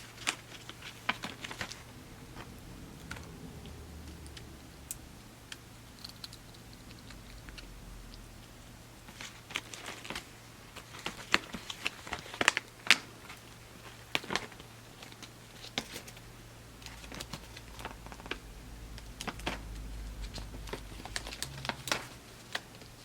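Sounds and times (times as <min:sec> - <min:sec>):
packaging crinkling: 0:00.0 - 0:02.5, 0:09.1 - 0:16.2, 0:16.8 - 0:23.0
faint low hum: 0:00.0 - 0:23.0.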